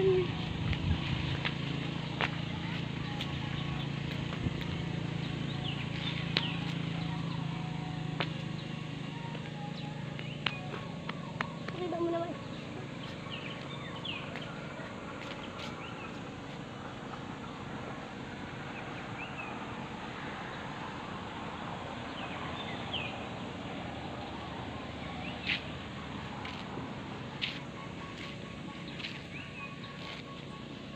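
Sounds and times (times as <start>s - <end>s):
bird chirps: 27.4s - 30.9s.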